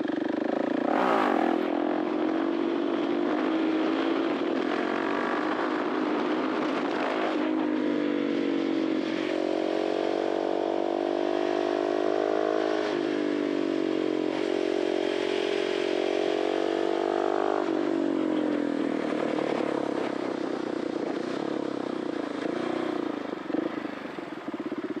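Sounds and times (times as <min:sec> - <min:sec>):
motorcycle engine: 0:00.0 - 0:25.0.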